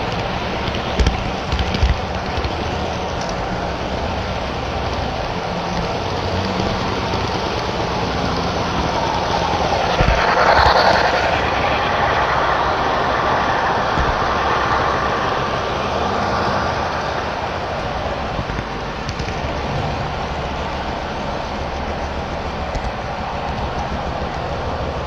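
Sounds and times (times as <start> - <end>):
model train wheels rumbling: 0.0 - 25.0.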